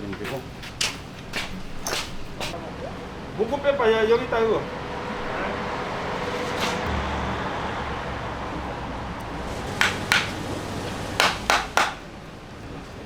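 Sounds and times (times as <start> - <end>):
metal striking metal: 4.3 - 12.1
background rumble: 4.3 - 12.8.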